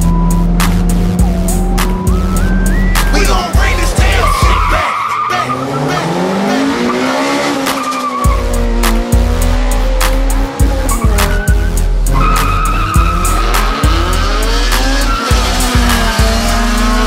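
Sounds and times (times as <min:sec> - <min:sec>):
car engine revving: 0:00.0 - 0:17.0
hip-hop track with heavy bass: 0:00.0 - 0:17.0
tyre squeal: 0:04.0 - 0:07.0, 0:10.9 - 0:13.6.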